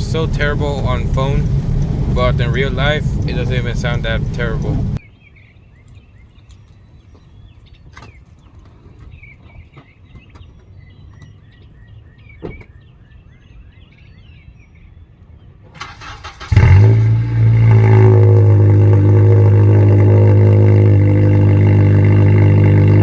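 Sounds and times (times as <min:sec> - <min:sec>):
car engine cranking and starting: 0:00.0 - 0:05.0, 0:15.8 - 0:23.0
loud droning engine idle: 0:00.0 - 0:05.0, 0:16.4 - 0:23.0
birds chirping: 0:00.0 - 0:23.0.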